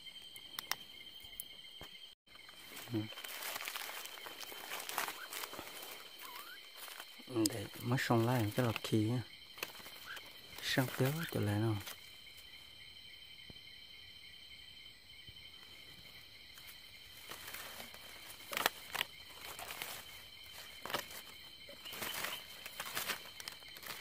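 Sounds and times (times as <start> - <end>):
crickets chirring: 0.0 - 24.0
bird flapping in dry leaves: 2.4 - 9.0, 9.6 - 12.1, 16.1 - 24.0.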